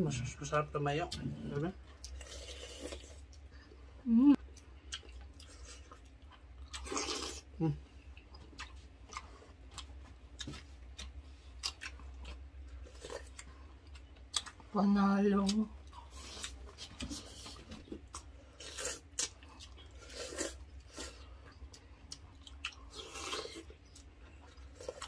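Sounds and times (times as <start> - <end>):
person chewing: 1.9 - 14.7, 15.5 - 25.0
person humming in appreciation: 4.1 - 4.4, 7.6 - 7.8.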